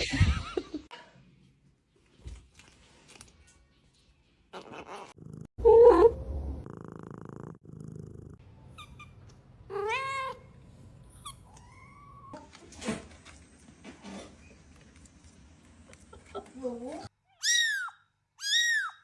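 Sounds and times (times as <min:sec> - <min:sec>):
cat purring: 0:06.5 - 0:08.4.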